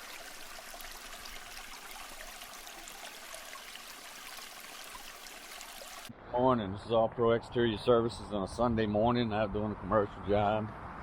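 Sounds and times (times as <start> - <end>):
water spraying and splashing: 0.0 - 6.1.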